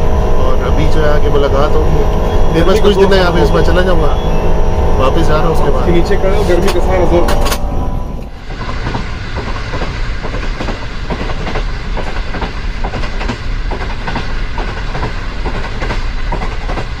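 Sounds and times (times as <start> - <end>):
train rumble: 0.0 - 17.0
wheels clattering over rail joints: 8.4 - 17.0.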